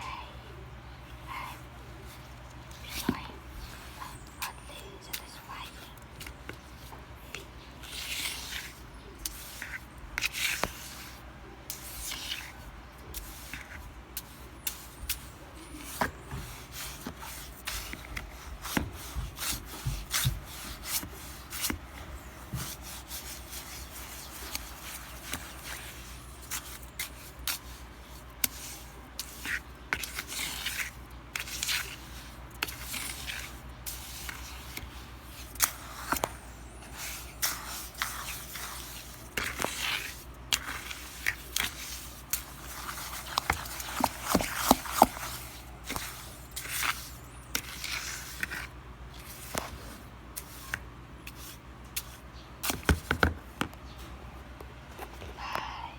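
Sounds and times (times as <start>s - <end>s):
low steady hum: 0.0s - 55.9s
rubbing and scraping: 14.6s - 52.1s.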